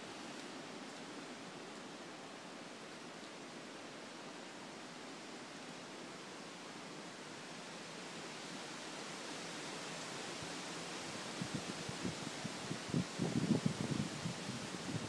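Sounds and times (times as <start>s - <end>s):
wind buffeting microphone: 11.4s - 15.0s.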